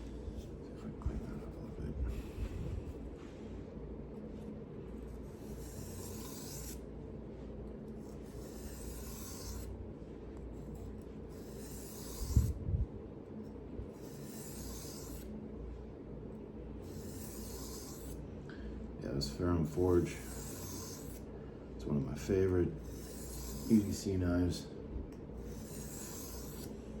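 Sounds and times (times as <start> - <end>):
knife sharpening on whetstone: 5.4 - 6.8, 8.3 - 9.7, 11.3 - 12.5, 14.0 - 15.2, 16.8 - 18.2, 20.0 - 21.2, 22.8 - 23.9, 25.4 - 26.7.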